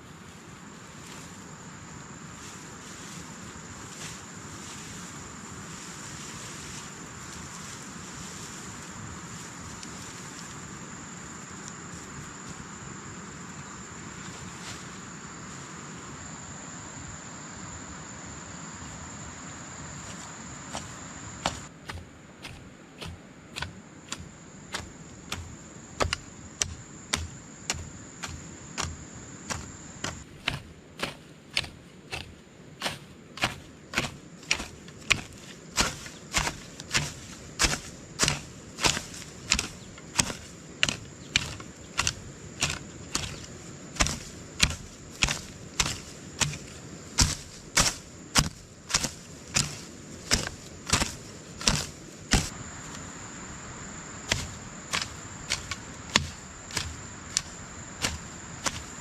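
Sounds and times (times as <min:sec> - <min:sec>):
insects trilling: 0:00.0 - 0:59.0
hand tool striking: 0:20.8 - 0:52.5, 0:54.3 - 0:59.0.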